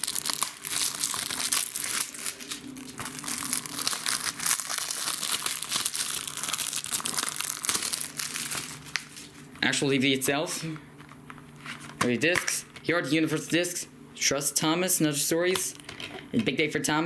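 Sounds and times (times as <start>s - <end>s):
shrink-wrap tearing and crinkling: 0.0s - 9.5s.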